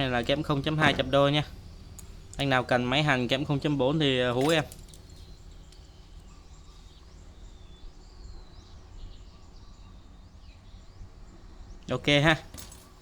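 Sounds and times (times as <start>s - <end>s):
faint high bird chirps: 0.0s - 13.0s
low steady hum: 0.0s - 13.0s.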